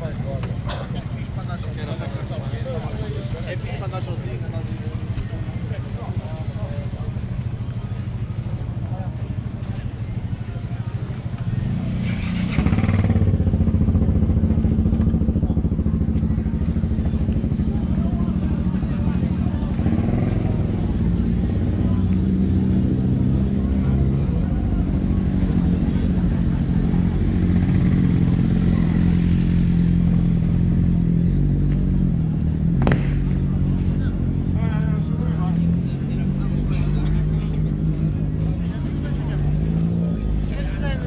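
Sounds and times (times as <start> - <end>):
motorcycle engine at low revs: 11.3 - 34.6.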